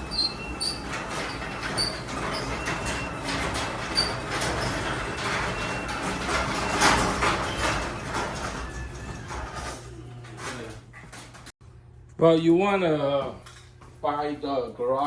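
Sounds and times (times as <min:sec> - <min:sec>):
garage door opener motor drone: 0:00.0 - 0:11.5
roller and hinge squeaks: 0:00.0 - 0:11.5
garage door rattling: 0:00.0 - 0:11.6.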